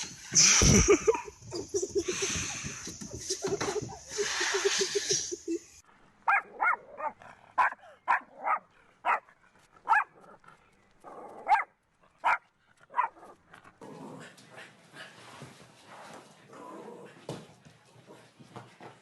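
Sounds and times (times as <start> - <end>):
dog yipping: 6.3 - 9.2, 9.9 - 10.1, 11.5 - 12.4.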